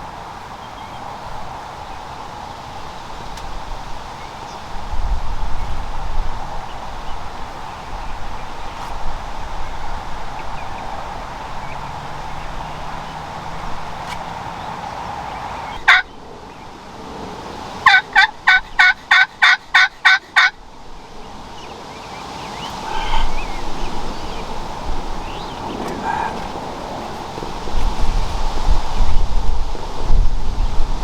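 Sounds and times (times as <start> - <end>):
turkey yelping: 15.8 - 16.1, 17.8 - 20.5, 22.8 - 28.2.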